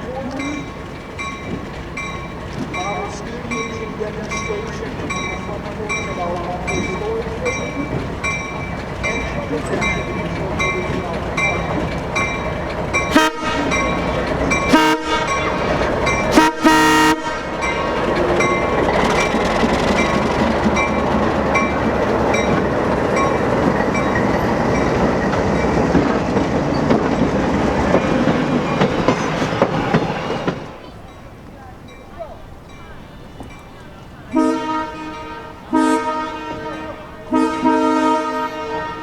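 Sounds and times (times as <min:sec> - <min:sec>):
train rumbling past: 0:00.0 - 0:39.0
wheels clacking over rail joints: 0:00.0 - 0:39.0
bell ringing: 0:00.3 - 0:25.8
train horn blasts: 0:13.1 - 0:18.0, 0:34.3 - 0:39.0.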